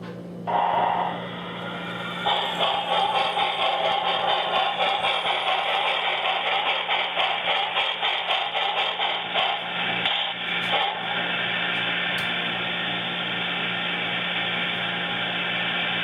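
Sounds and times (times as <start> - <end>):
model steam locomotive chuffing: 0.5 - 16.0.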